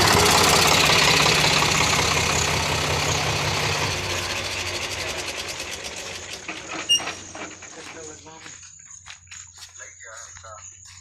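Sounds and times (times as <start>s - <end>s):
tractor diesel engine idling: 0.0s - 8.6s.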